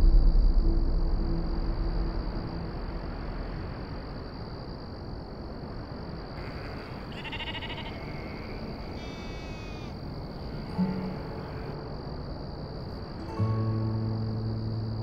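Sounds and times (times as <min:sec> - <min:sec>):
steady outdoor hiss: 0:00.0 - 0:15.0
sheep bleating: 0:06.4 - 0:11.8.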